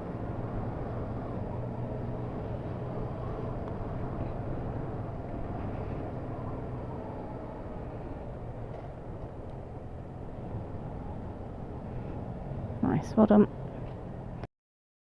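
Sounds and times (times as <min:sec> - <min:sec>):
road and wind noise: 0:00.0 - 0:14.5.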